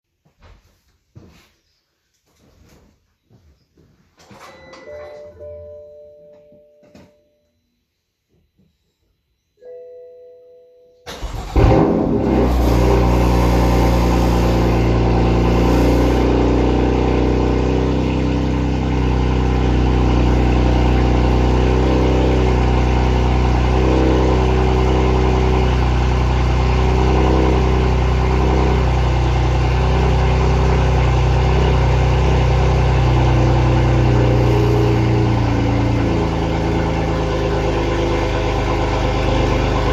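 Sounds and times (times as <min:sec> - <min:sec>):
short chime: 0:04.3 - 0:07.9
car engine starting and idling: 0:11.1 - 0:39.9.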